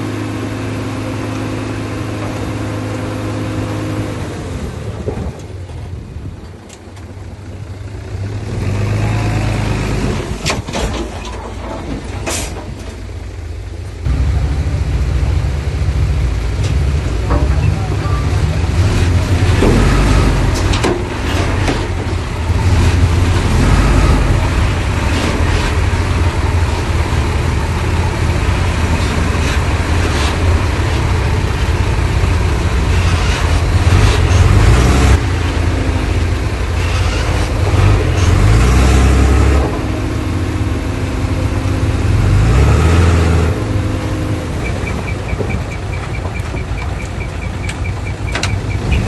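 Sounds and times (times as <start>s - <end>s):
diesel engine rumble: 0.0s - 49.0s
metallic clanks and rattles: 10.4s - 13.2s, 16.6s - 18.3s.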